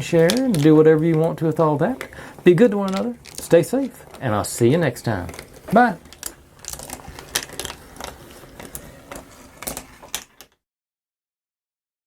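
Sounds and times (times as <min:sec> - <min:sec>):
marbles clacking on wooden track: 0:00.0 - 0:04.2.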